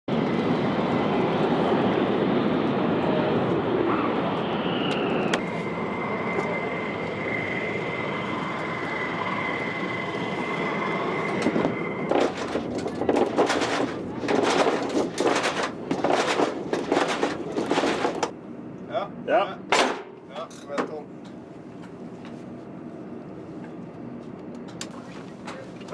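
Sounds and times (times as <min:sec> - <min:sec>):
high whine: 0:00.1 - 0:14.0
fighter jet engine roar: 0:00.1 - 0:25.9.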